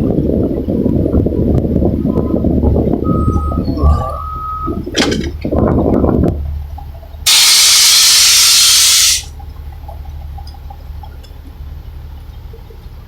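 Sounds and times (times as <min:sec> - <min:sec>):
compressed air hissing: 0:07.3 - 0:09.3.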